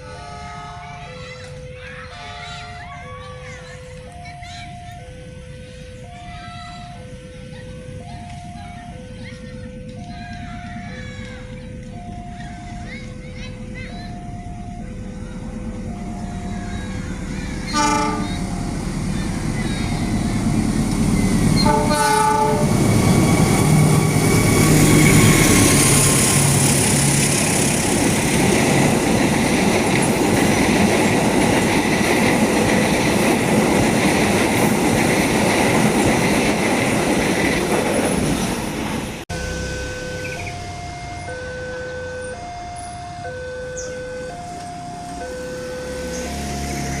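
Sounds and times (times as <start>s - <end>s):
level crossing alarm: 0.0s - 37.9s, 39.2s - 47.0s
train horn blasts: 0.1s - 1.0s, 17.7s - 18.7s, 21.6s - 25.6s
train wheels clattering on rails: 16.6s - 39.2s.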